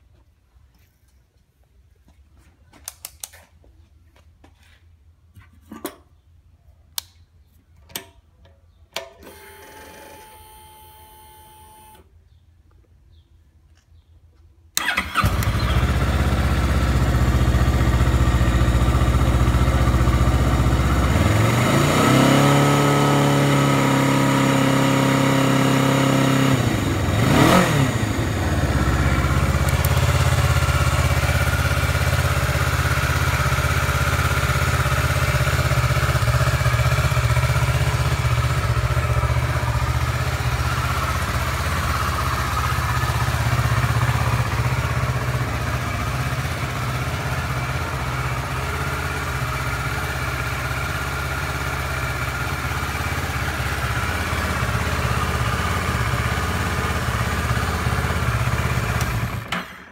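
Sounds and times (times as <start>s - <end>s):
motorcycle engine starting and idling: 7.9s - 12.2s, 14.7s - 59.9s
motorcycle engine revving: 14.8s - 59.6s.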